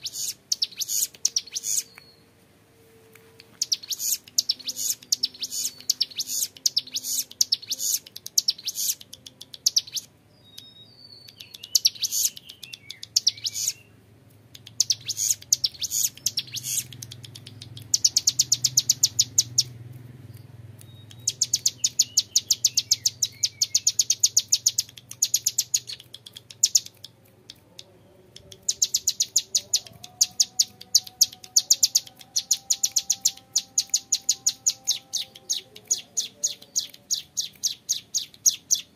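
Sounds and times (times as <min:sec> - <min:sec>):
bird singing rapid trills: 0:00.0 - 0:02.2, 0:03.6 - 0:14.0, 0:14.6 - 0:27.2, 0:28.5 - 0:38.9.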